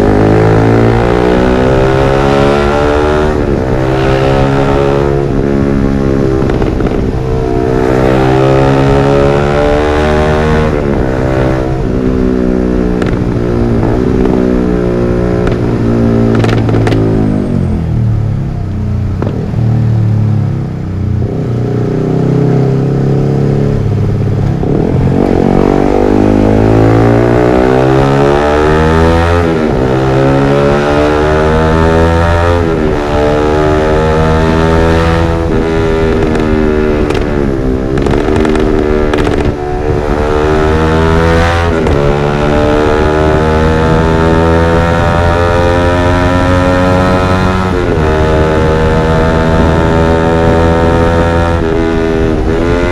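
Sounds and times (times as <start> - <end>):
motorcycle engine revving: 0.0 - 52.9
exhaust pop: 6.2 - 7.3, 12.9 - 14.4, 15.4 - 17.2, 19.1 - 19.6, 36.0 - 40.1.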